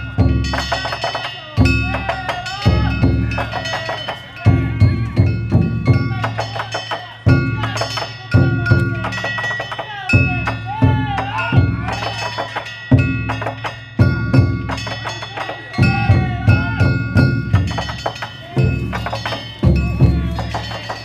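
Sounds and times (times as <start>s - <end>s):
hand gongs ringing: 0.0s - 21.0s.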